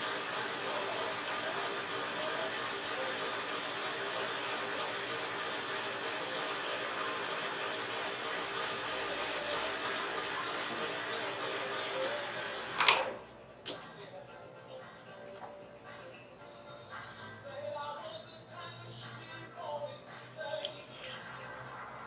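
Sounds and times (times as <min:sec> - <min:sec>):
machine humming with hiss: 0:00.0 - 0:13.2.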